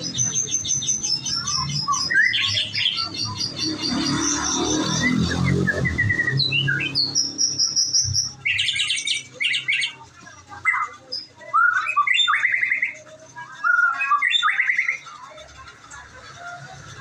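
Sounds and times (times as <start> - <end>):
bird singing whistled trills: 0.0 - 10.0.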